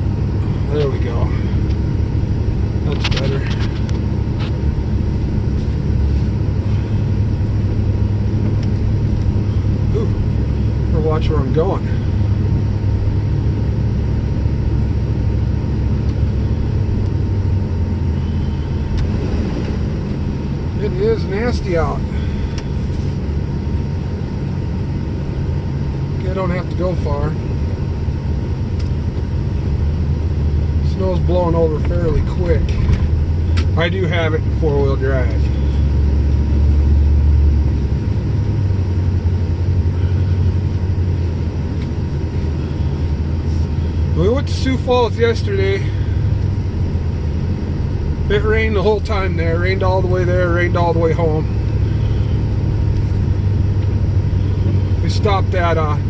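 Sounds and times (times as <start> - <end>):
vehicle engine and tyres droning: 0.0 - 56.0
vehicle driving through snow: 15.9 - 23.6.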